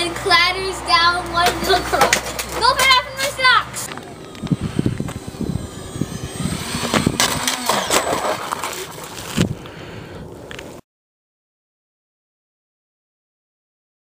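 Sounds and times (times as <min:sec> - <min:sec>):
electric jet whine: 0:00.0 - 0:10.8
wind buffeting microphone: 0:03.8 - 0:10.5.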